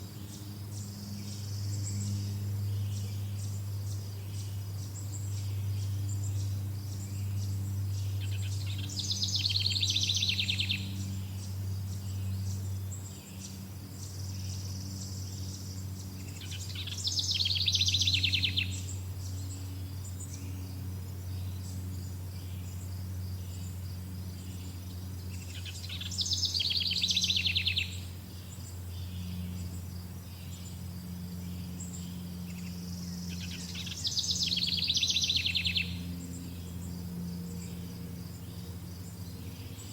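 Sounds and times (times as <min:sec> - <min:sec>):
insect chorus: 0:00.0 - 0:39.9
low steady hum: 0:00.0 - 0:39.9
songbird trilling: 0:06.4 - 0:12.6, 0:13.2 - 0:20.6, 0:24.3 - 0:30.8, 0:31.4 - 0:39.9.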